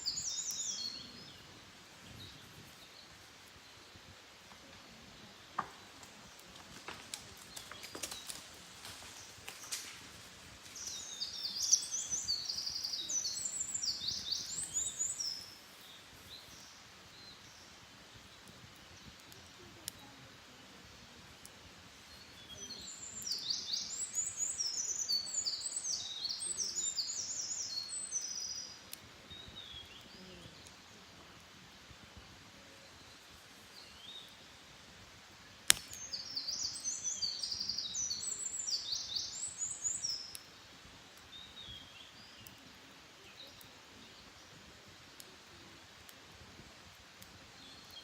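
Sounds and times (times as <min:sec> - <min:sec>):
songbird twittering song: 0:00.0 - 0:10.0, 0:10.7 - 0:34.8, 0:35.4 - 0:48.0
sharp crack: 0:35.6 - 0:36.1.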